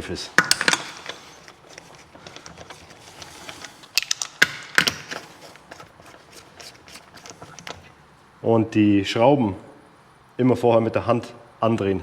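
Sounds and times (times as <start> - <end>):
small metallic clicks: 0.4 - 7.9.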